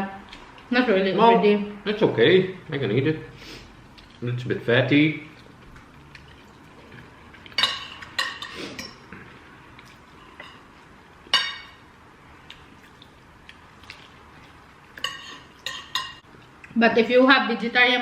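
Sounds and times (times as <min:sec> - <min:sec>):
cutlery clinking on plates: 0:07.5 - 0:09.1, 0:11.3 - 0:11.8, 0:15.0 - 0:16.2.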